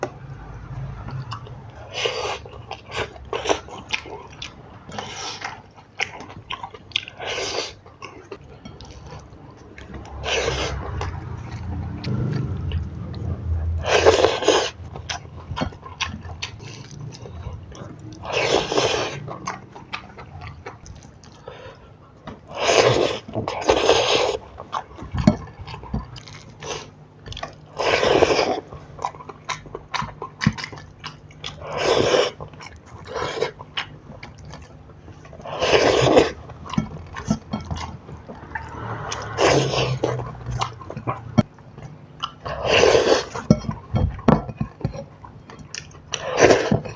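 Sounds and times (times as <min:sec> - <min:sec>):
chewing with wet mouth clicks: 0:00.0 - 0:46.9
noisy bites or slurps: 0:08.8 - 0:19.6, 0:35.4 - 0:41.4.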